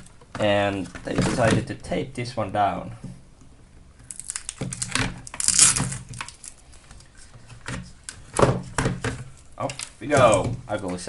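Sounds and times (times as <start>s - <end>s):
crinkling: 3.7s - 11.0s
tape tearing: 4.0s - 6.6s.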